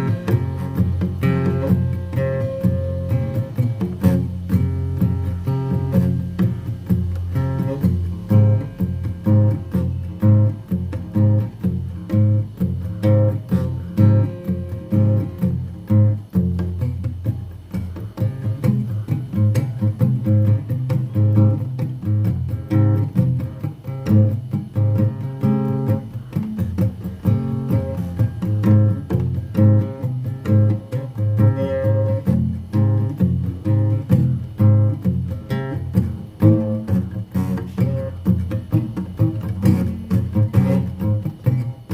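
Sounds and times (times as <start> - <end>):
acoustic guitar plucking: 0.0 - 41.9
bass line: 0.0 - 41.9.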